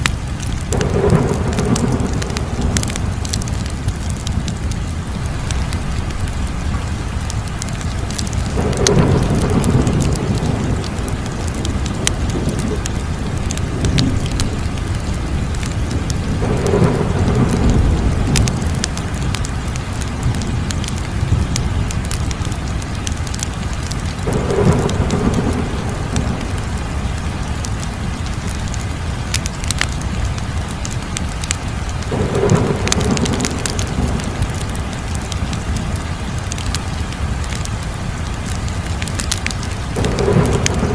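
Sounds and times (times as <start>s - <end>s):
fire crackling: 0.0s - 40.9s.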